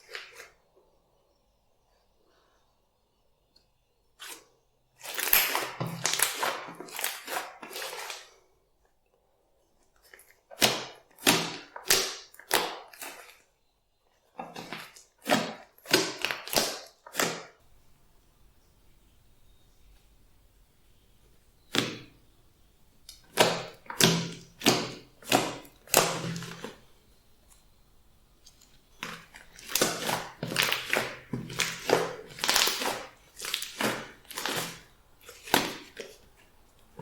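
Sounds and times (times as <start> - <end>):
slime squelching: 5.0 - 8.4, 14.4 - 20.6, 21.2 - 37.0.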